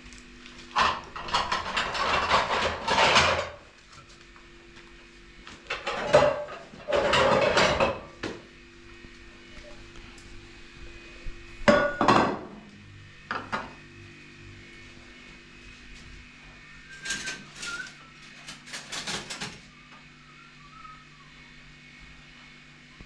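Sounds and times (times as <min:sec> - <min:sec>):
steady low hum: 0:00.0 - 0:18.3.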